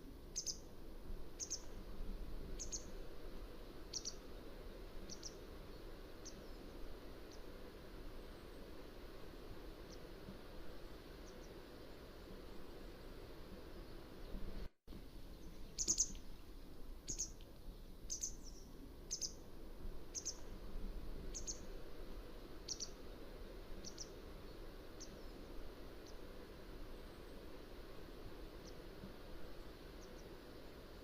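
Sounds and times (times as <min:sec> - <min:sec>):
faint background noise: 0:00.0 - 0:31.0
wagtail chirping: 0:00.3 - 0:00.7, 0:01.4 - 0:01.8, 0:02.6 - 0:03.0, 0:03.9 - 0:04.2, 0:15.4 - 0:16.2, 0:17.1 - 0:17.4, 0:18.1 - 0:19.4, 0:20.1 - 0:20.5, 0:21.3 - 0:21.7, 0:22.7 - 0:23.0, 0:23.8 - 0:24.2.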